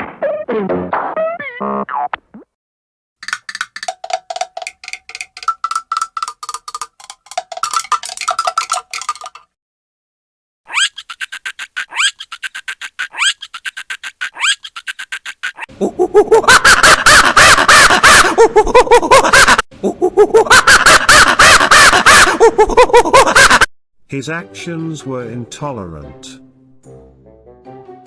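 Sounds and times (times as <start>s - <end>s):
fast ticking: 3.2s - 9.4s
monkey chattering and screeching: 10.7s - 15.7s.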